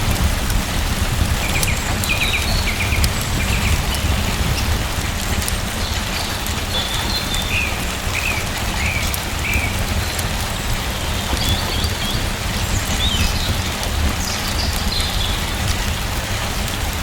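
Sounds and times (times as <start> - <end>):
steady rain falling: 0.0 - 17.0
bird chirping: 5.8 - 15.6.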